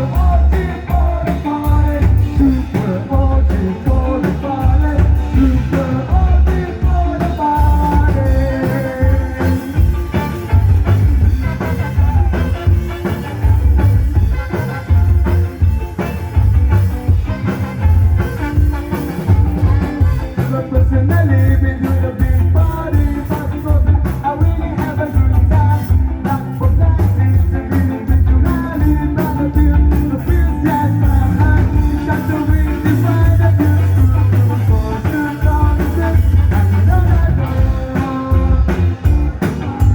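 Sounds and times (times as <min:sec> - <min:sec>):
person singing: 0:00.0 - 0:10.6, 0:19.8 - 0:39.9
live band playing up-tempo song: 0:00.0 - 0:39.9.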